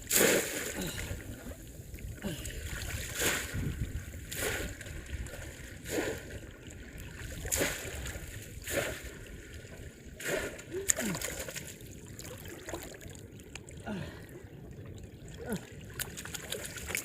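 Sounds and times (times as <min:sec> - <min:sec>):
splashes in shallow water: 0:00.0 - 0:01.6, 0:02.2 - 0:13.8, 0:15.2 - 0:17.0
wind on microphone: 0:01.1 - 0:06.4.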